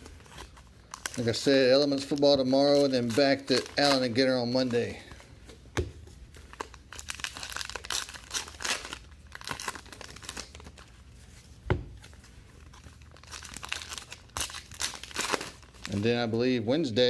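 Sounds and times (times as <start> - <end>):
wrappers tearing and crinkling: 0.0 - 5.2, 6.3 - 11.2, 12.1 - 16.3.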